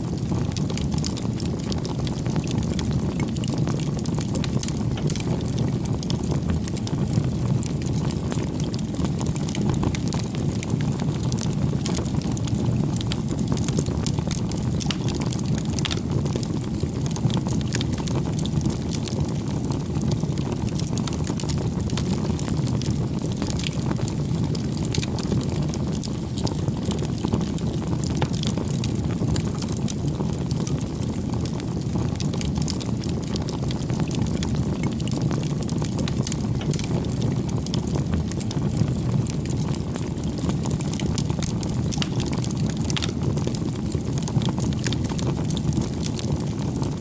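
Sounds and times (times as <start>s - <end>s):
burning wood crackling and popping: 0.0s - 47.0s
campfire flames rumbling: 0.0s - 47.0s.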